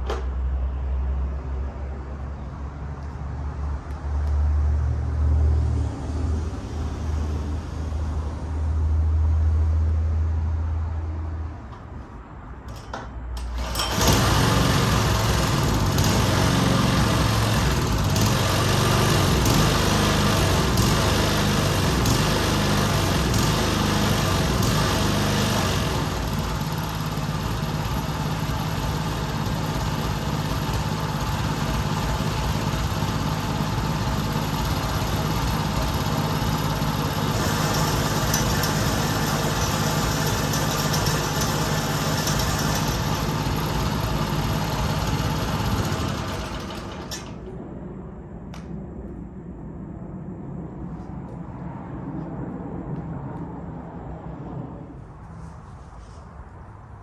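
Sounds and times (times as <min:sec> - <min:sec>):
small petrol engine running: 0:13.4 - 0:47.5.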